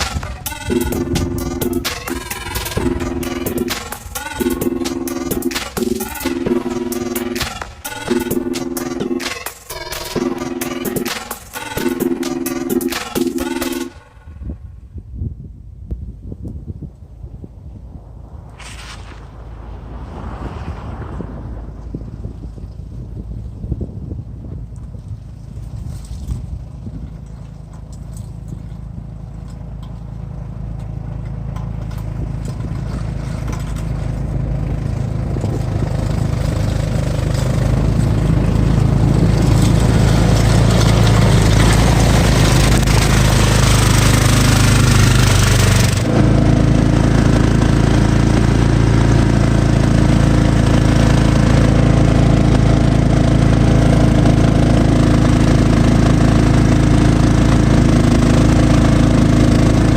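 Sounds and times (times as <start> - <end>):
lawn tractor engine running: 0.0 - 14.5, 25.1 - 59.9
snow blower hissing rush: 39.7 - 59.9.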